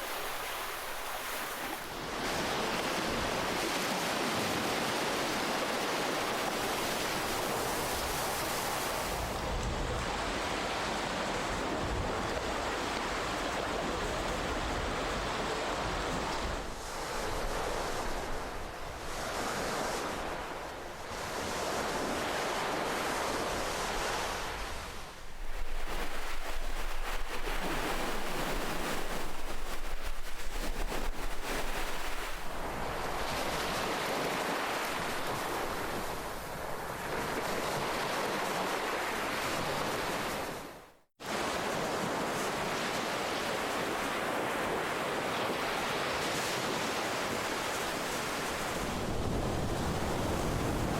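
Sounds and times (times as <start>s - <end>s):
ocean waves surging: 0.0s - 50.9s.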